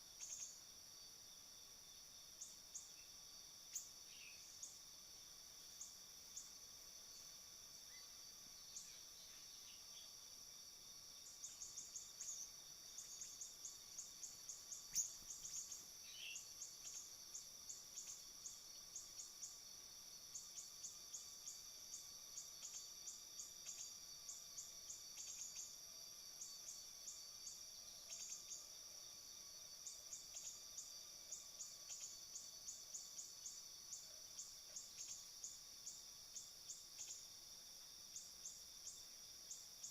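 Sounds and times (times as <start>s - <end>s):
high-pitched insect drone: 11.4s - 25.8s.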